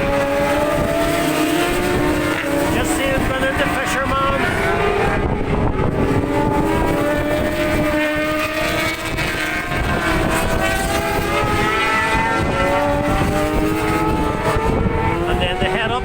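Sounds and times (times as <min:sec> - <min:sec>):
racing motorcycle engines: 0:00.0 - 0:16.0
wind buffeting microphone: 0:00.0 - 0:16.0.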